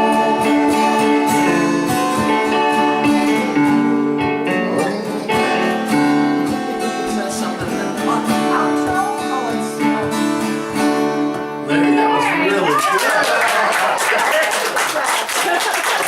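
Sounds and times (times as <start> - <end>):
strummed acoustic guitar: 0.0 - 12.8
live band playing: 0.0 - 13.0.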